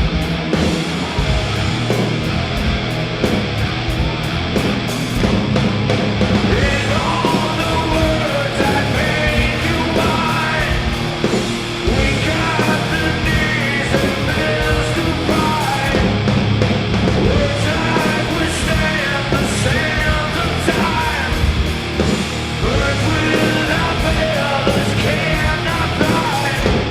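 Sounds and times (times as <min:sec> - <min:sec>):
heavy rock band playing: 0:00.0 - 0:26.9
person singing or shouting: 0:06.5 - 0:16.2, 0:17.2 - 0:21.5, 0:22.6 - 0:26.9.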